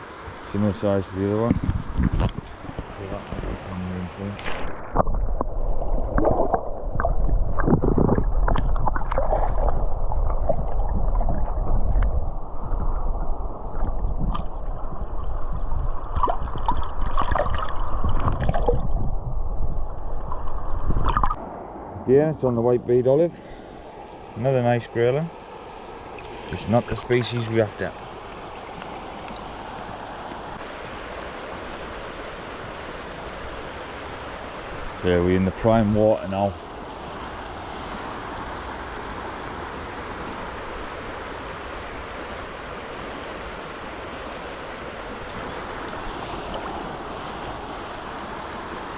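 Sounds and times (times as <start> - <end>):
water splashes: 0.0 - 19.3, 20.0 - 21.4, 23.4 - 48.9
low wind-like rumble: 0.0 - 24.8
river water rushing and gurgling: 0.0 - 48.9.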